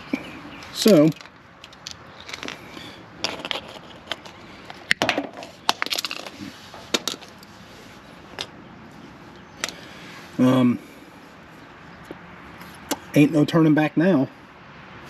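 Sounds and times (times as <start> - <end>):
tools clicking and knocking: 0.6 - 2.6, 3.2 - 7.4.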